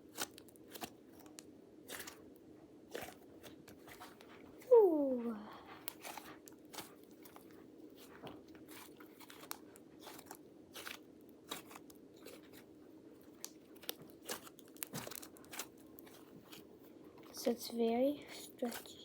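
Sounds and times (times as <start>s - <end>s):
low steady hum: 0.0s - 19.0s
slime crackling and popping: 0.1s - 2.3s, 5.8s - 16.7s.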